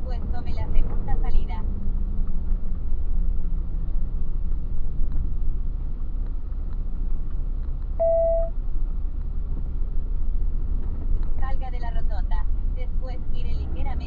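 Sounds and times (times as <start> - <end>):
truck engine and road noise: 0.0 - 14.0
short beep: 8.0 - 8.5.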